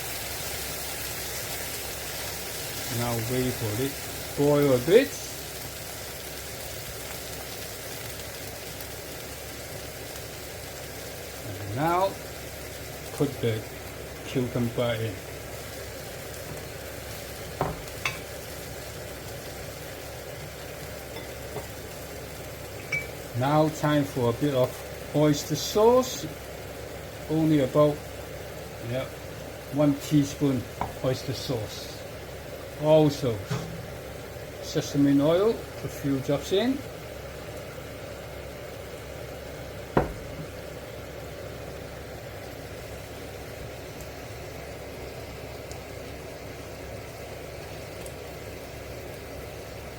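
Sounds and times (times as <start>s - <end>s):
food sizzling in a pan: 0.0s - 49.9s
sharp knock: 40.0s - 40.5s.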